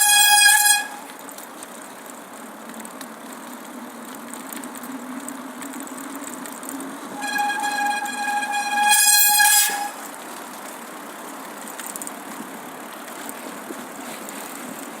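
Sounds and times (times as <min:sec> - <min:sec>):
railway brakes squealing: 0:00.0 - 0:01.1, 0:07.1 - 0:10.2.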